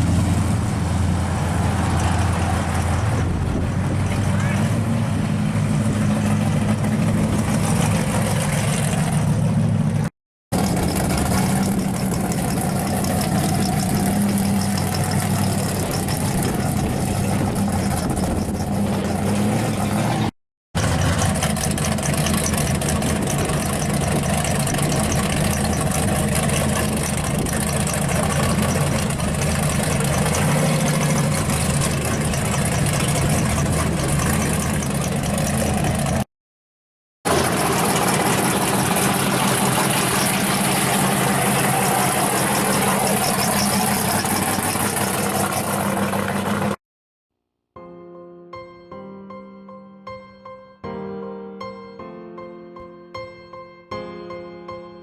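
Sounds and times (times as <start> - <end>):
car engine idling: 0.0 - 36.2, 37.3 - 46.8.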